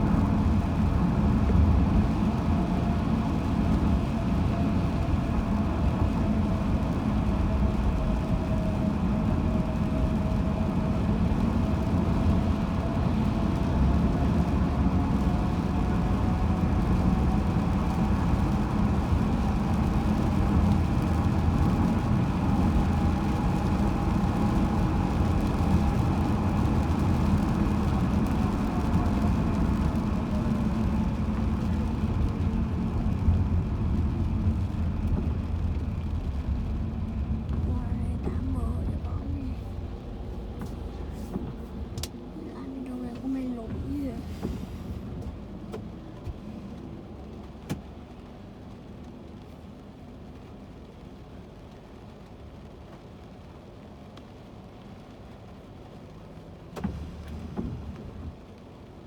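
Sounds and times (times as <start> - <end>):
car road noise: 0.0 - 59.0
faint whine: 36.2 - 44.3.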